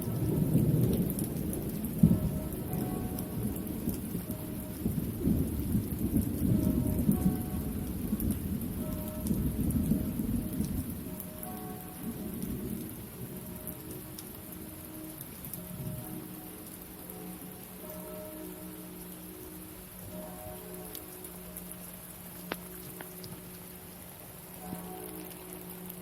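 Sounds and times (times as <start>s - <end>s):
low rumble of thunder: 0.0s - 18.8s
steady rain: 0.0s - 26.0s.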